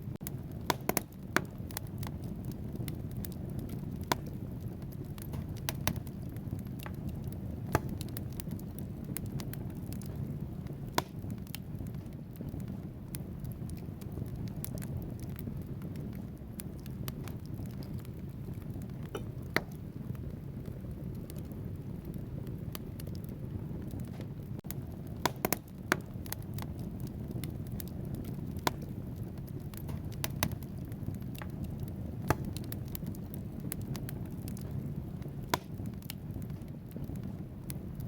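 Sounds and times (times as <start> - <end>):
flames rumbling: 0.0 - 38.0
logs crackling and popping: 0.0 - 38.0.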